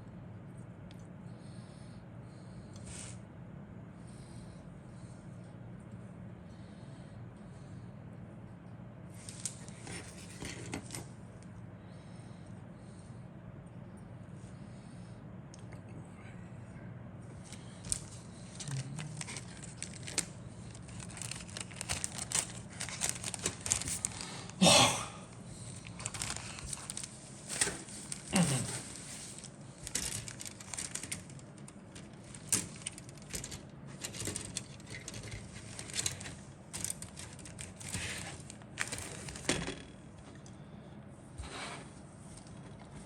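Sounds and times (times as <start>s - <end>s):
plastic packaging crinkling: 17.5s - 24.6s, 25.6s - 39.6s.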